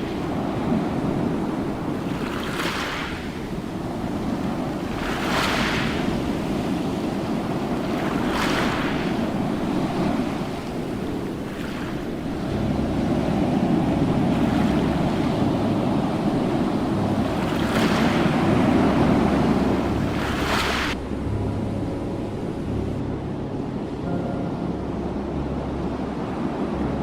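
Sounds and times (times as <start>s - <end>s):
ocean waves breaking on shore: 0.0s - 27.0s.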